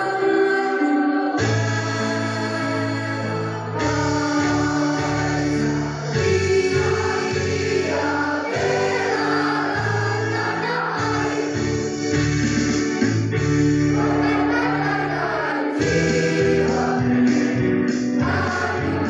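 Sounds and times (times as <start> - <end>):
choir singing held chords: 0.0 - 19.0.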